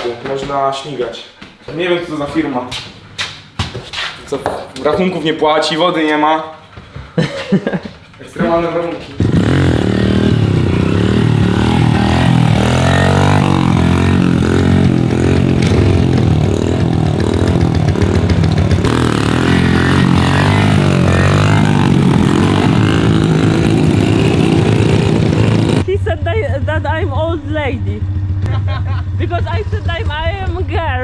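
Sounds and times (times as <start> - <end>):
voices: 4.3 - 28.0
small motorbike engine revving: 9.2 - 25.9.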